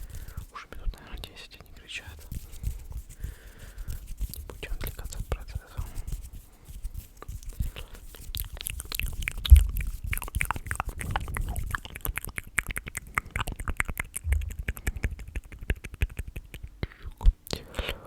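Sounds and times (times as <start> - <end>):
wet mouth clicks and smacks: 7.2 - 17.6
low thumps: 9.4 - 10.0, 14.2 - 15.3.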